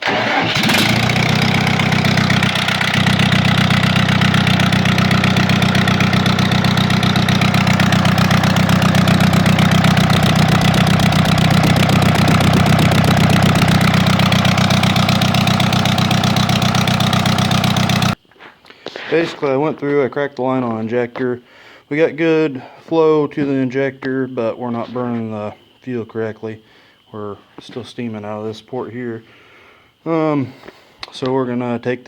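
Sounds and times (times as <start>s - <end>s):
misfiring diesel engine idling: 0.0s - 18.2s.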